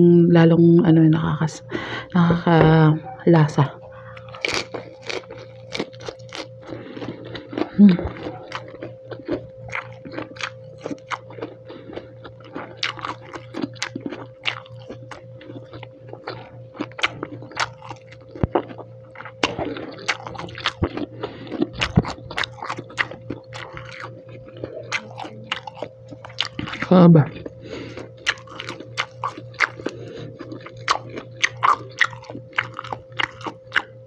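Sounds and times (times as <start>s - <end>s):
faint steady hum: 0.0s - 34.0s
close chewing with wet clicks: 4.1s - 34.0s.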